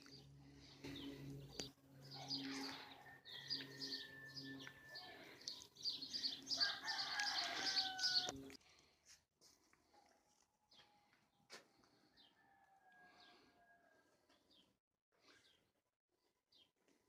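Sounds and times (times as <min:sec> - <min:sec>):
steady low hum: 0:00.0 - 0:06.6
birds chirping: 0:00.0 - 0:08.6.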